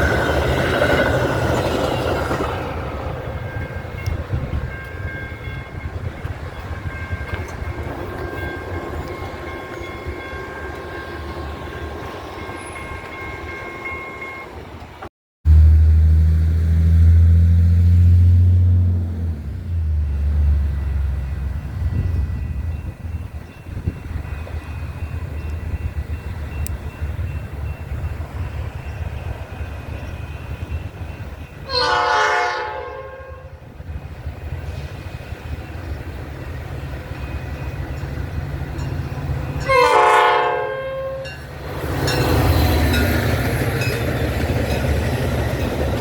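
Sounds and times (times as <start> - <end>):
train rumble: 0.0 - 46.0
locomotive engine drone: 14.5 - 32.3.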